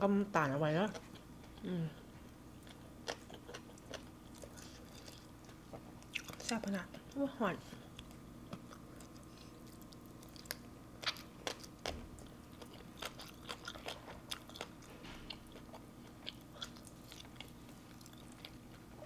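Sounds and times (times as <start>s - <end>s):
person chewing crunchy food: 2.6s - 6.5s, 7.9s - 19.0s.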